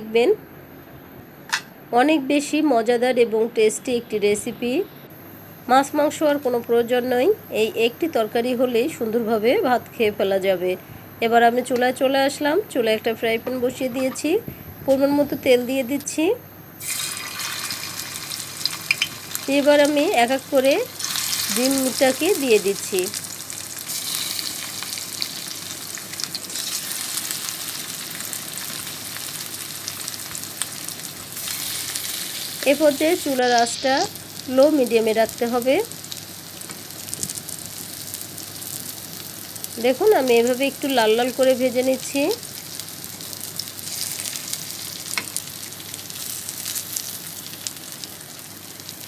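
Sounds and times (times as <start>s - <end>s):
egg sizzling in hot oil: 16.8s - 49.0s
oil crackling: 20.8s - 35.1s.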